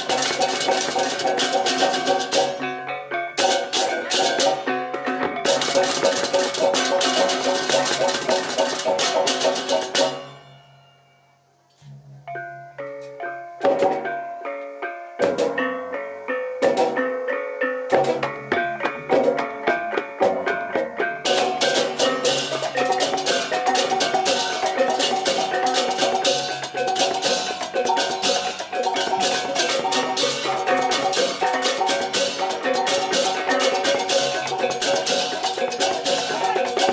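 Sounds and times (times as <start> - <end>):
gamelan metallic keyed notes: 0.0 - 36.9
cymbal crashes: 21.3 - 36.9.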